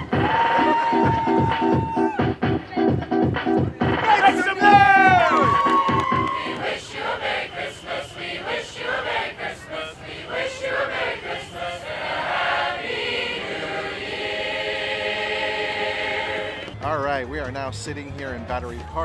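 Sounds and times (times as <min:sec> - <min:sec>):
choir singing: 0:06.3 - 0:16.8.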